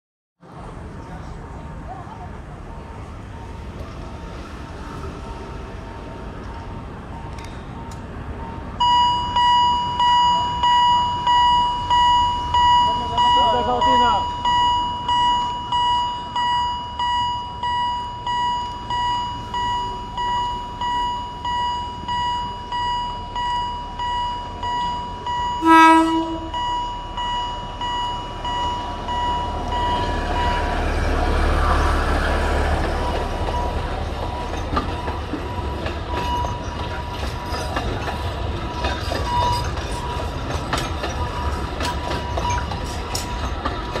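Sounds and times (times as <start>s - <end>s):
train rumbling past: 0.4s - 44.0s
warning bell ringing: 8.8s - 30.8s
locomotive horn blast: 25.6s - 26.6s
wheels clicking over rail joints: 32.0s - 44.0s.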